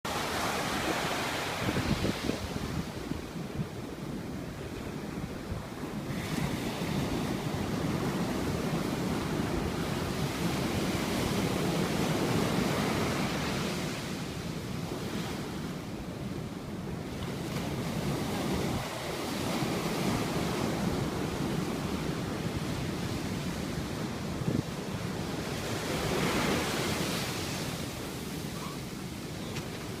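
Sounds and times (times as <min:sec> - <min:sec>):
sea surf breaking: 0:00.1 - 0:03.1, 0:17.0 - 0:30.0
wind buffeting microphone: 0:01.5 - 0:04.3.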